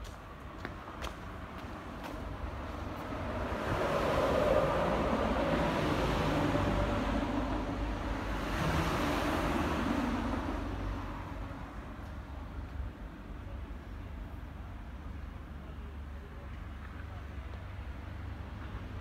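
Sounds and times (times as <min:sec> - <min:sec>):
tram passing rumble and whine: 0:00.0 - 0:19.0.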